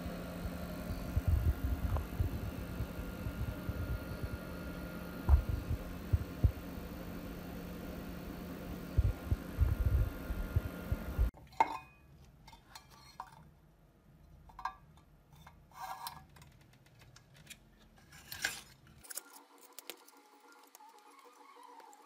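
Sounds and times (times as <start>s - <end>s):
loud low noise: 0.0s - 11.3s.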